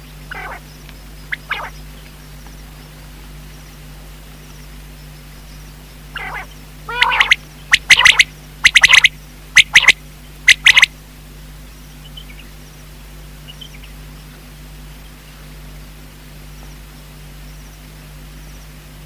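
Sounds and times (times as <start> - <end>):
quail calling: 0.3 - 0.7, 1.3 - 1.8, 6.1 - 10.9.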